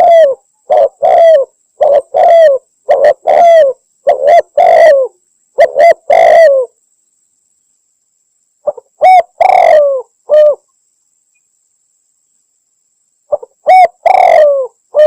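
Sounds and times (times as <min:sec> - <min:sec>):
dove cooing loudly: 0:00.0 - 0:06.8, 0:08.6 - 0:10.6, 0:13.3 - 0:15.0.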